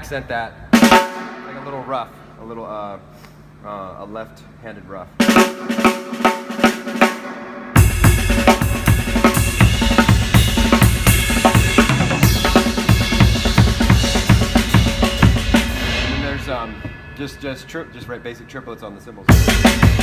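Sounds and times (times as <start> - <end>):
drum kit played fast: 0.0 - 1.8, 5.2 - 20.0.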